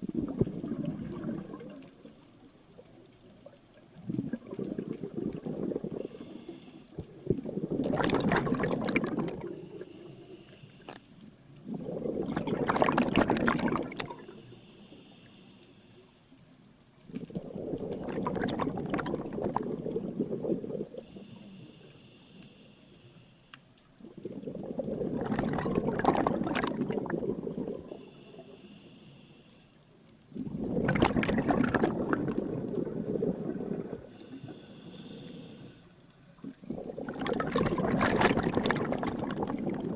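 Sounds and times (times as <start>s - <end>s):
exhaled bubbles rushing: 0.0s - 2.2s, 2.8s - 6.3s, 7.3s - 9.6s, 11.6s - 14.4s, 17.1s - 21.0s, 24.0s - 28.0s, 30.4s - 34.1s, 36.4s - 39.9s
regulator hiss on inhalation: 5.9s - 7.5s, 9.4s - 11.2s, 14.2s - 16.3s, 20.9s - 23.7s, 27.8s - 29.9s, 33.8s - 36.0s.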